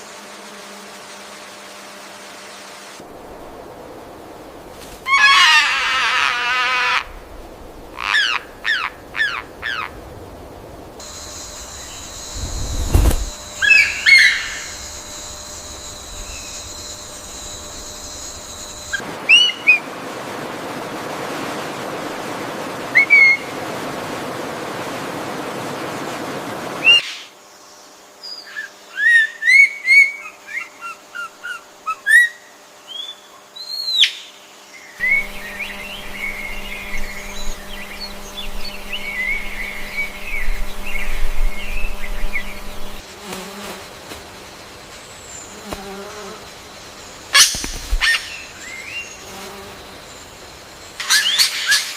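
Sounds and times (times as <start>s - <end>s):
steady hiss: 0.0s - 5.2s, 6.7s - 28.2s, 34.4s - 51.9s
steady high hum: 10.0s - 19.2s, 35.0s - 43.1s
birds chirping and whistling: 35.0s - 43.0s.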